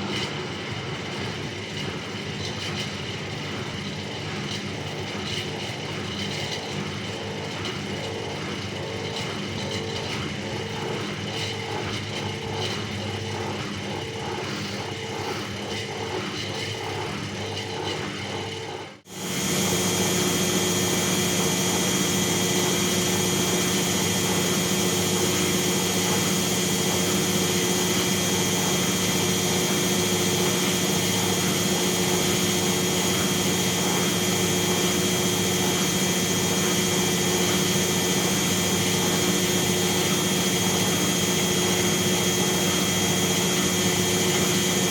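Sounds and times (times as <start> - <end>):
washing machine churning: 0.7 - 44.9
washing machine drum spinning: 19.1 - 44.9.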